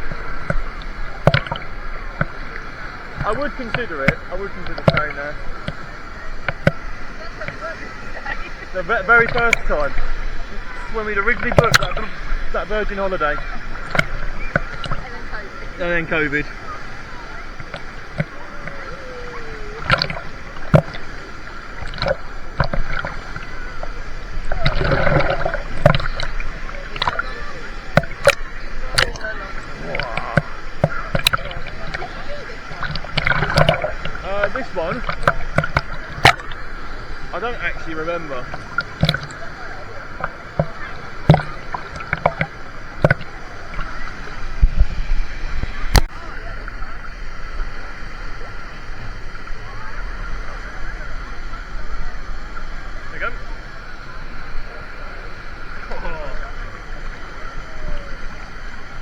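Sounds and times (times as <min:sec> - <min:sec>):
murmur of voices: 0:00.0 - 0:59.0
water splashing and sloshing: 0:00.0 - 0:59.0.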